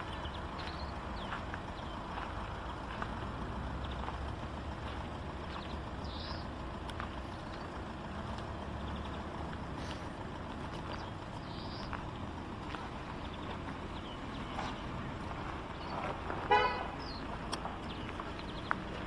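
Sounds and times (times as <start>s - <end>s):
car horn toot: 16.4s - 17.0s.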